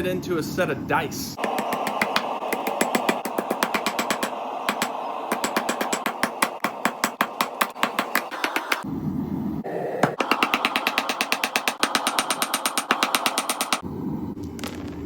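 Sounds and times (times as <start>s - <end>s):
steady hiss: 1.4s - 8.9s.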